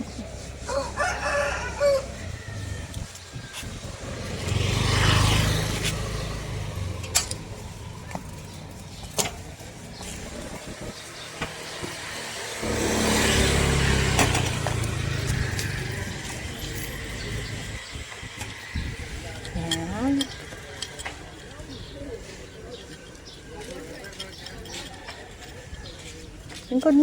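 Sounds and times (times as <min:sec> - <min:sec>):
vehicles passing by: 0:00.0 - 0:27.0.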